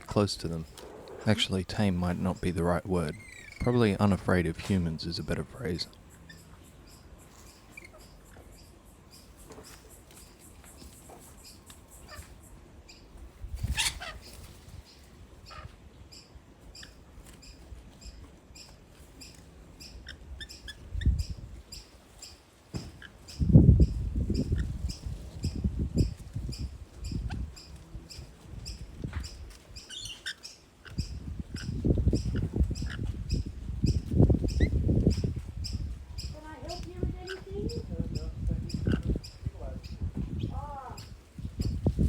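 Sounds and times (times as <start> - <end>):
high bird chattering: 0.1 - 12.6, 23.0 - 41.8
bird screech: 3.1 - 3.7
rustling and thumping in branches: 22.6 - 23.0.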